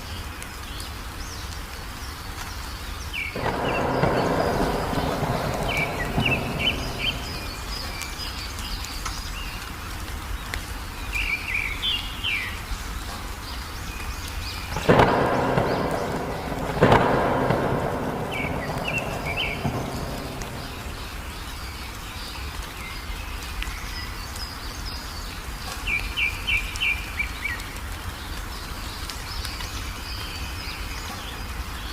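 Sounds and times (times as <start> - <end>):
songbirds chirping: 0.0 - 31.9
steady rain: 0.0 - 31.9
thunder rumbling and cracking: 3.2 - 9.4, 14.4 - 22.6.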